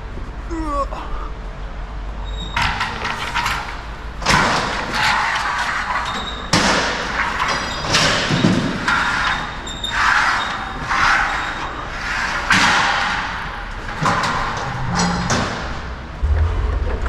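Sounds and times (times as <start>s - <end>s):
rattling clatter of knocks: 2.5s - 10.8s
heavy metallic thuds and clangs: 2.6s - 7.2s, 14.2s - 17.0s
low hum: 14.8s - 17.0s.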